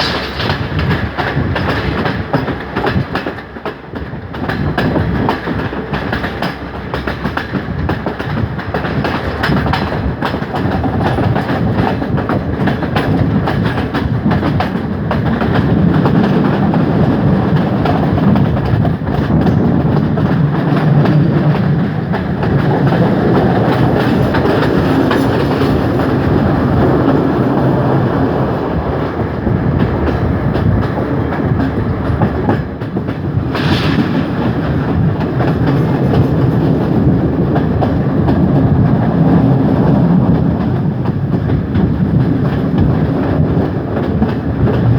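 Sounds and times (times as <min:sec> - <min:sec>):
train rumbling along track: 0:00.0 - 0:44.9
wheels clattering over rails: 0:00.0 - 0:44.9.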